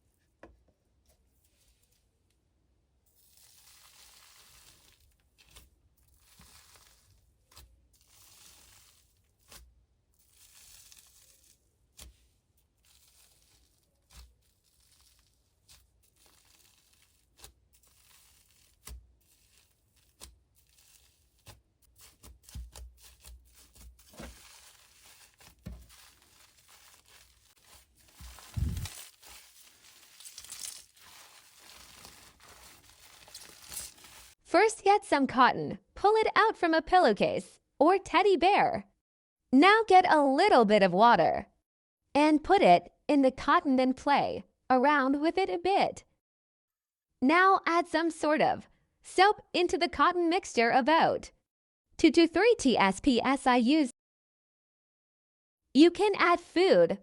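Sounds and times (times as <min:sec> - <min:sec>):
cotton stuffing tearing and crinkling: 0:03.2 - 0:34.4.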